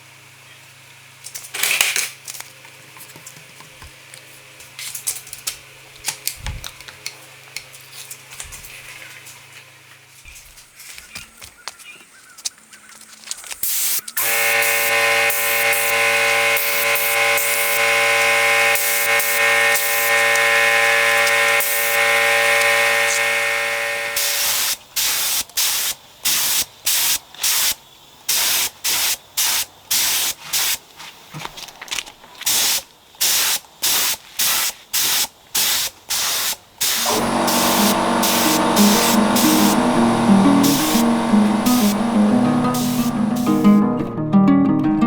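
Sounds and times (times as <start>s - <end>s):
short spray bursts: 13.6s - 30.8s, 32.5s - 43.8s
spraying hiss: 13.6s - 30.9s, 32.5s - 43.8s
steady hum: 14.2s - 24.8s, 37.0s - 44.0s.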